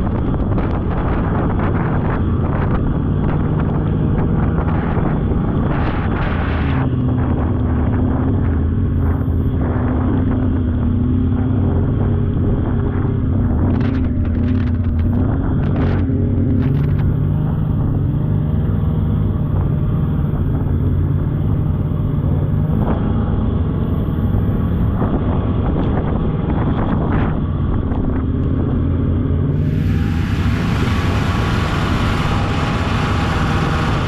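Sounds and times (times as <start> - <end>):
snowmobile engine running: 29.5 - 34.0.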